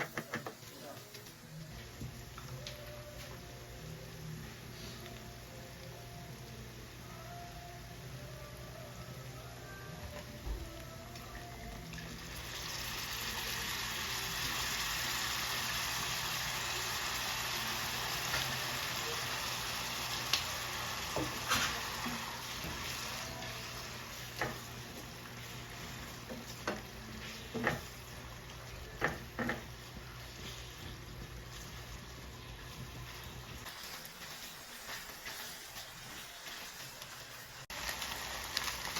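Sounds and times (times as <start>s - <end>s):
food sizzling in a pan: 11.0s - 38.9s.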